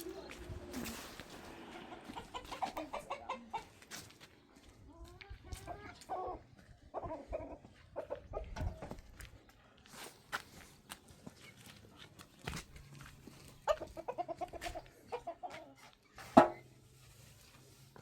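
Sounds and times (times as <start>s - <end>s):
hens clucking: 0.0s - 9.2s, 13.3s - 16.6s.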